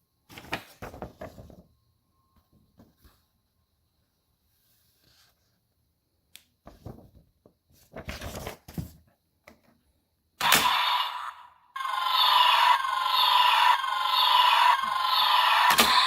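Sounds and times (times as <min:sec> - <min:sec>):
electronic toy sound effect: 0:10.4 - 0:16.0.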